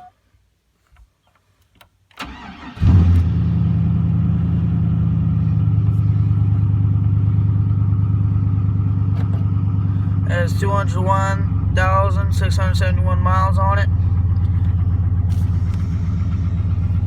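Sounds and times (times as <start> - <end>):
truck engine idling: 3.4 - 17.0.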